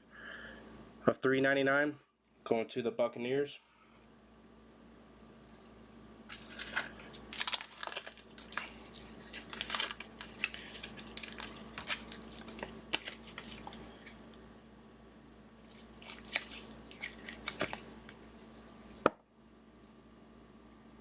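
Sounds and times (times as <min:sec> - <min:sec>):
foil wrapper crinkling and tearing: 0:06.2 - 0:14.0, 0:15.6 - 0:19.1.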